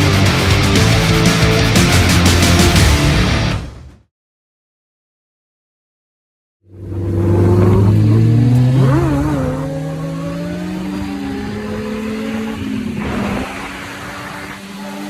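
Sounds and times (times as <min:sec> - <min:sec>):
motorcycle engine accelerating: 0:00.0 - 0:03.3, 0:06.7 - 0:15.0.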